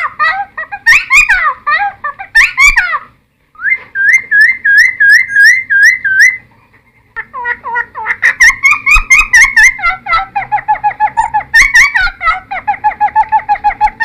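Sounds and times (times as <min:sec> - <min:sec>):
bird singing whistled notes: 0:03.6 - 0:06.4.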